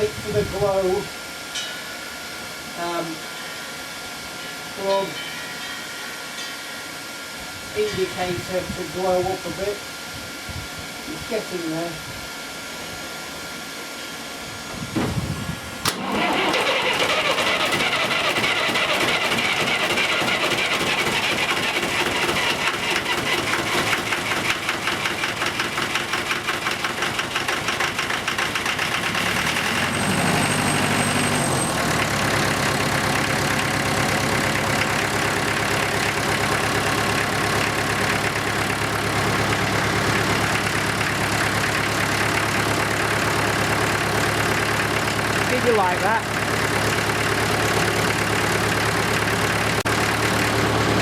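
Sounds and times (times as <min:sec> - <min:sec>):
diesel tractor engine running: 0:13.0 - 0:51.0
starter motor turning: 0:15.0 - 0:31.0.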